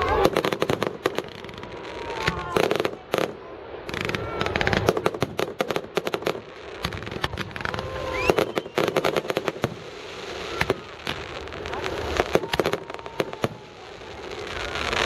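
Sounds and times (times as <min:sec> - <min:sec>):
fireworks cracks and bangs: 0:00.0 - 0:15.0
fireworks whistles gliding in pitch: 0:03.9 - 0:15.0.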